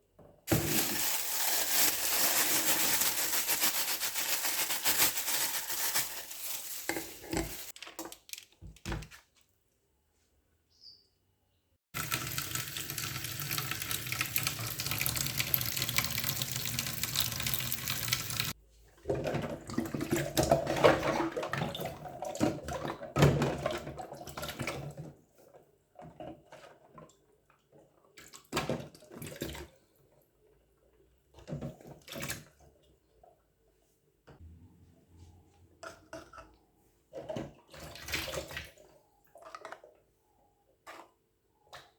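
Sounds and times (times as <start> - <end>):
kitchen tap running: 12.0 - 18.6.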